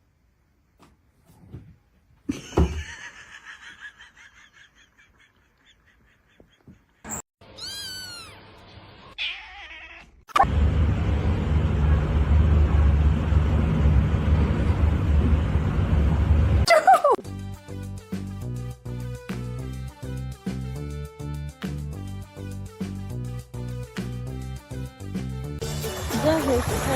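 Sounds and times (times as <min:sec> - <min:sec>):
cat meowing: 0:07.4 - 0:08.4, 0:09.0 - 0:10.2
loud steady low rumble: 0:10.5 - 0:16.6.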